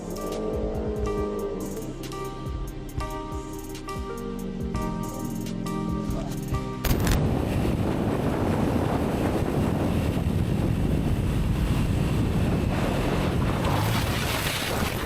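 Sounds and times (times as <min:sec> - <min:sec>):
heavy wind buffeting microphone: 0:06.5 - 0:15.0.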